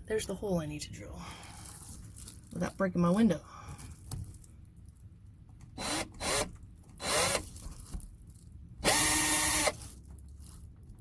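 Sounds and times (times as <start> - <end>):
power drill motor: 5.8 - 7.5, 8.8 - 9.8.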